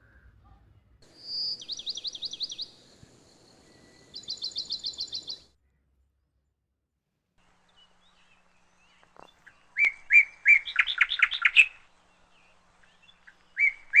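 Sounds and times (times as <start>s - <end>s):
songbird singing: 1.0s - 5.5s, 7.4s - 14.0s.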